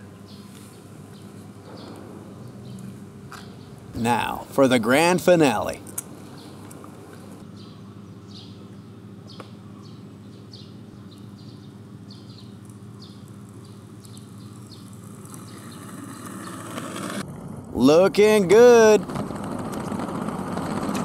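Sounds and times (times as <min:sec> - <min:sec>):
low outdoor background hum: 0:00.0 - 0:21.0
small bird chirping: 0:07.5 - 0:16.6.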